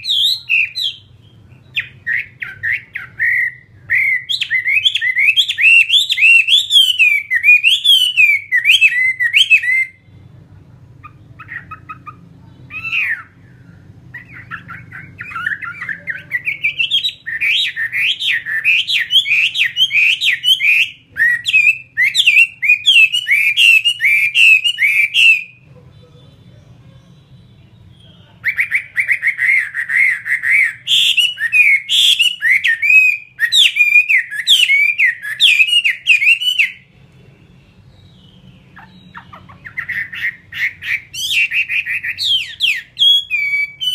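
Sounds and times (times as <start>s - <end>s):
bird singing whistled phrases: 0.0s - 10.1s, 11.0s - 25.6s, 27.3s - 36.9s, 37.5s - 43.9s.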